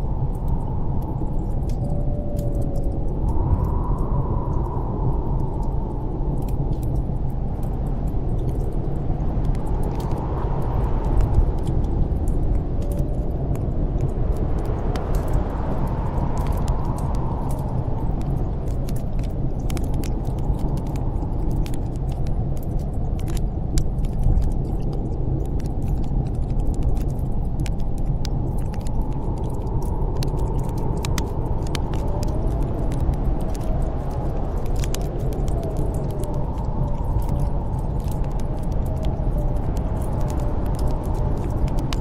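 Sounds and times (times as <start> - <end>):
wind blowing with low rumble: 0.0 - 42.0
wood fire crackling: 5.2 - 42.0.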